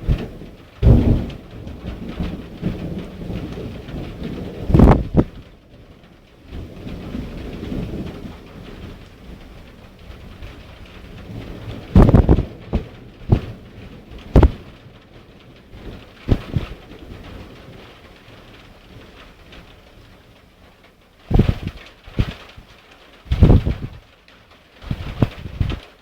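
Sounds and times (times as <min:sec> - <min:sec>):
low thunder rumble: 0:00.0 - 0:24.2, 0:24.8 - 0:26.0
heavy rain falling: 0:00.0 - 0:26.0
sharp loud knocks: 0:04.7 - 0:05.4, 0:12.0 - 0:13.6, 0:14.2 - 0:14.6, 0:16.3 - 0:16.8, 0:21.3 - 0:22.5, 0:23.3 - 0:24.0.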